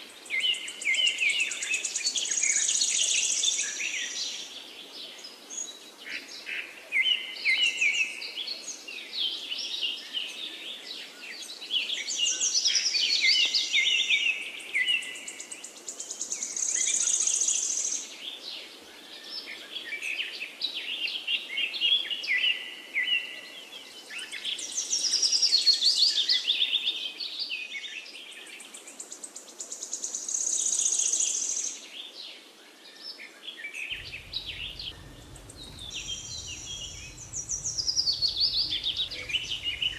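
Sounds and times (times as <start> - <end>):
small birds chirping: 33.9 - 39.9.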